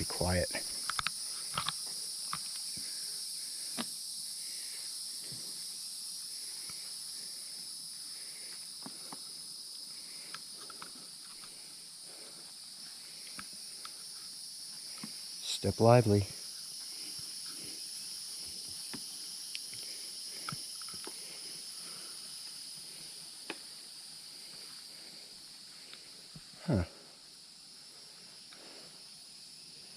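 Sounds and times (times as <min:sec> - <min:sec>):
high-pitched insect chorus: 0:00.0 - 0:29.9.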